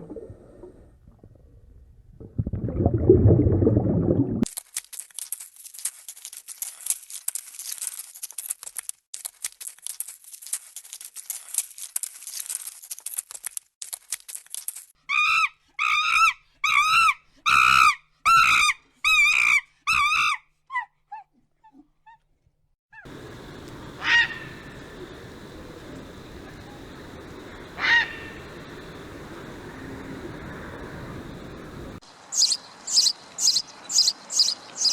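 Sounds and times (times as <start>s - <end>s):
bird honking calls: 23.1s - 25.5s, 27.6s - 28.9s.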